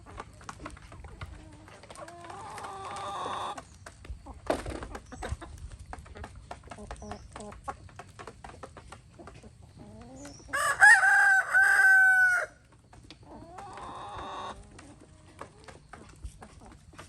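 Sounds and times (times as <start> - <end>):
chickens clucking: 0.0 - 17.0
rooster crowing: 10.5 - 12.6.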